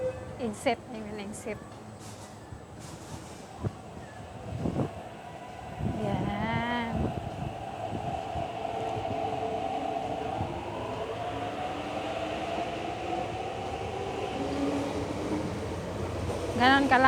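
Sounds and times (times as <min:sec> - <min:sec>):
wheels rumbling on rails: 0:00.0 - 0:17.0
metro train motor whine: 0:03.9 - 0:17.0.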